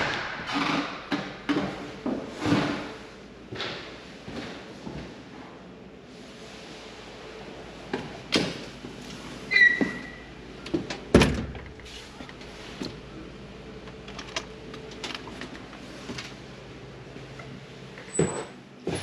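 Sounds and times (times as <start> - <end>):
high squeak: 9.5 - 10.2.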